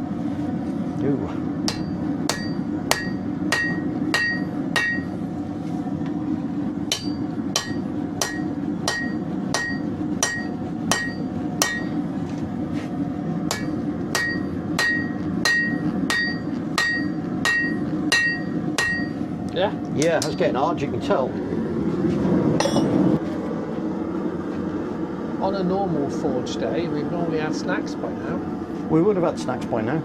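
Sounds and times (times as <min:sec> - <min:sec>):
hammer ringing on steel: 0:01.7 - 0:05.1, 0:06.9 - 0:12.0, 0:13.5 - 0:19.2.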